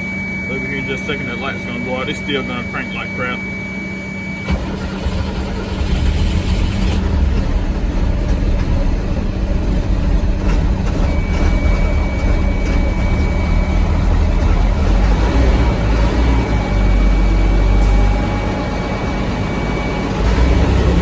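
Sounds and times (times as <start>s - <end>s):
dashboard buzzer: 0.0s - 4.6s
diesel engine cranking and idling: 0.0s - 21.0s.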